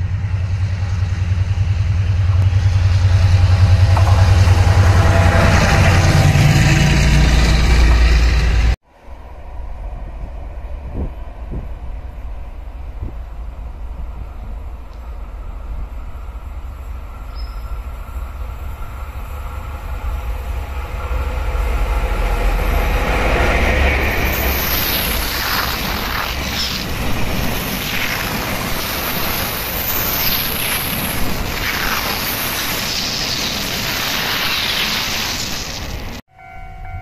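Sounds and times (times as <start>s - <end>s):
locomotive engine rumble: 0.0s - 35.0s
train wheels clattering: 1.3s - 8.7s
wheels squealing: 22.5s - 37.0s.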